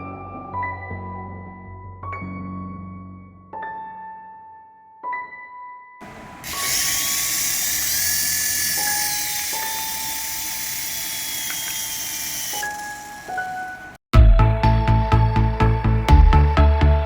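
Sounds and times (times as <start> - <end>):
toy motor whirring: 6.0 - 14.0.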